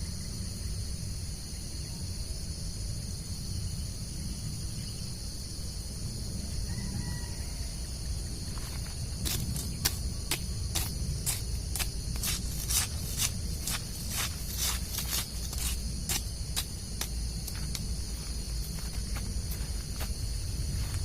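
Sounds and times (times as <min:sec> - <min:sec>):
high-pitched insect chorus: 0:00.0 - 0:21.0
low background rumble: 0:07.4 - 0:21.0
sharp rustling scrapes: 0:08.5 - 0:21.0.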